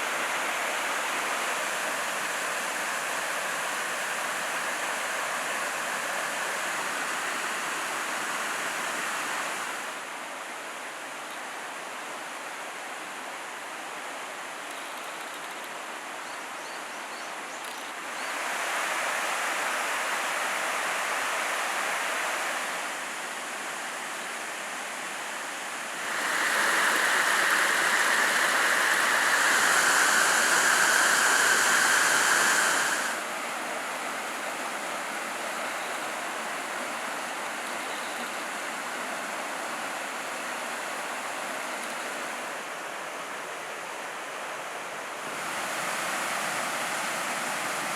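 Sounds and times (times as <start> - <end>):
stream rushing over rocks: 18.0 - 47.9.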